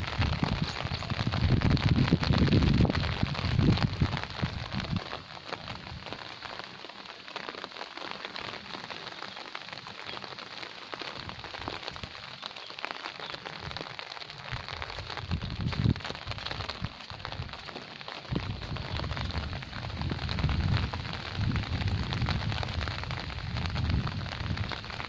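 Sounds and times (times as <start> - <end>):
wind buffeting microphone: 0.0 - 6.1, 14.5 - 25.0
rain pattering: 0.0 - 25.0.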